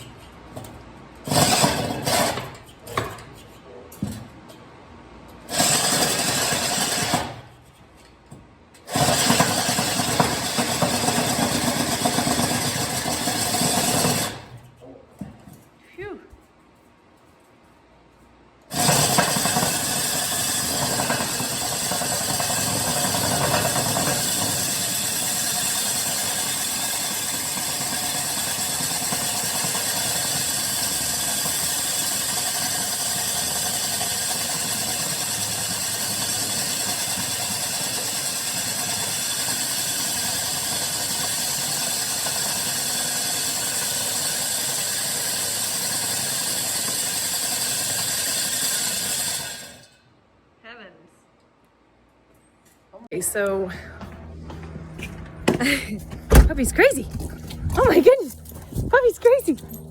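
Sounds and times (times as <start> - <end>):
core drill grinding through wall: 1.2 - 2.6, 5.5 - 7.4, 8.9 - 14.5, 18.7 - 50.0.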